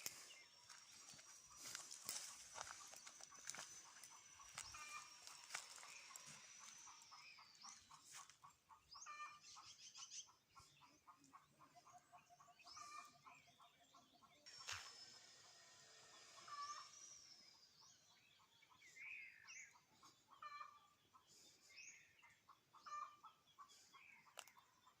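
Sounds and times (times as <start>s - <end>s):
high-pitched whine: 0.0s - 7.7s, 14.5s - 17.8s
chickens clucking: 0.0s - 14.8s, 18.4s - 25.0s
birds calling: 0.0s - 15.2s, 15.8s - 25.0s.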